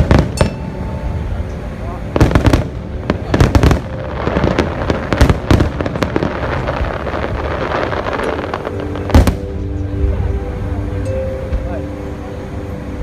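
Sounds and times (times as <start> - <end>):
firework crackle: 2.1 - 9.6.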